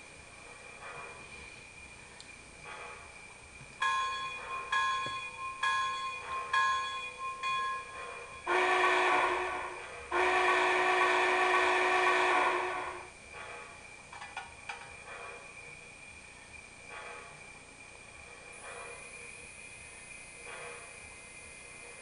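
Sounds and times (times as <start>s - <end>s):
model locomotive bell ringing: 3.8s - 10.3s
steam whistle blasts: 8.4s - 13.1s.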